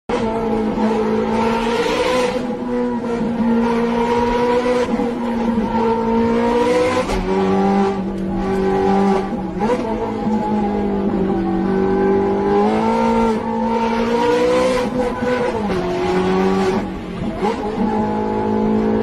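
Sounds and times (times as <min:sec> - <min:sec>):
car engine howling at high revs: 0:00.1 - 0:19.0.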